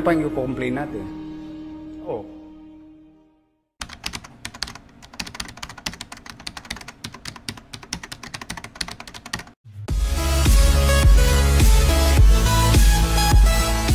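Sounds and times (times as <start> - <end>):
keyboard typing clicks: 3.8 - 9.6
electronic music with heavy bass: 9.9 - 13.9.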